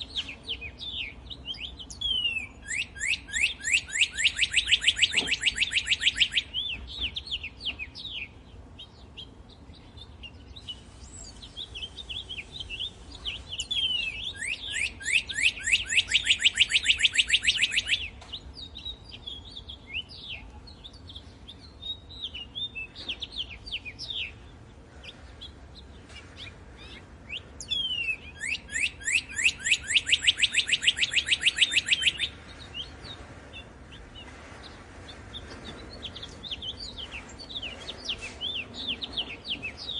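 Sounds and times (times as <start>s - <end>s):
bird trilling whistled notes: 2.0s - 6.6s, 12.4s - 18.1s, 27.6s - 32.4s.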